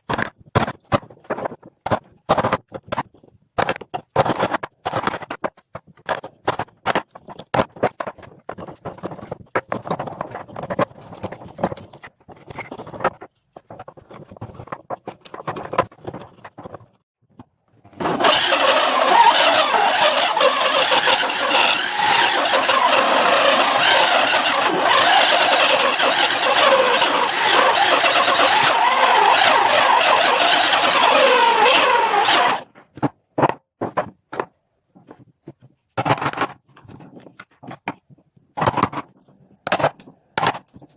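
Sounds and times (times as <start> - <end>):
power tool working wood: 18.0 - 32.6.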